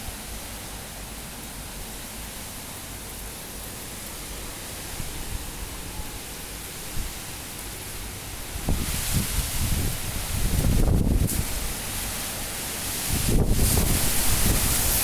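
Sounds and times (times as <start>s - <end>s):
strong wind rushing: 13.1s - 15.0s.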